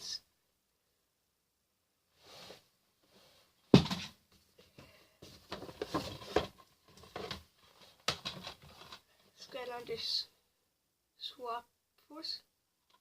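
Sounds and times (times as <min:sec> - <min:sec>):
sharp knock on box: 0:03.8 - 0:04.1
plastic cases clicking and tapping: 0:08.0 - 0:09.0.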